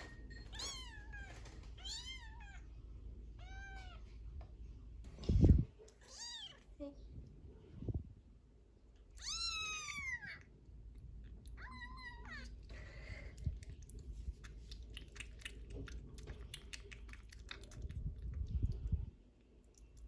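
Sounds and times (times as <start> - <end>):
kitten meowing: 0.6 - 2.6, 6.0 - 6.6, 9.2 - 10.4, 11.6 - 12.5.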